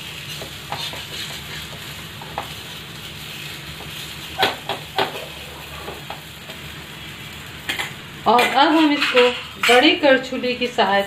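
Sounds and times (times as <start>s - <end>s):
batter sizzling in oil: 0.0s - 11.0s
metal spatula scraping: 0.1s - 2.5s, 8.4s - 10.0s.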